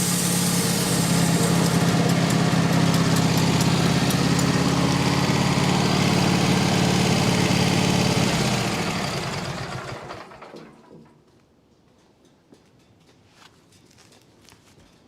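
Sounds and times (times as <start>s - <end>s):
engine idling and shutting off: 0.0s - 11.2s.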